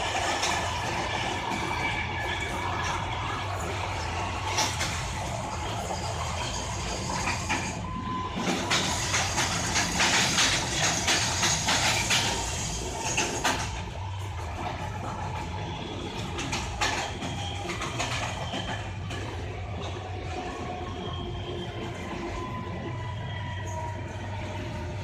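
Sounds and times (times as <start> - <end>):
train rumble inside carriage: 0.0 - 25.0
wheels clattering over rail joints: 8.4 - 15.3.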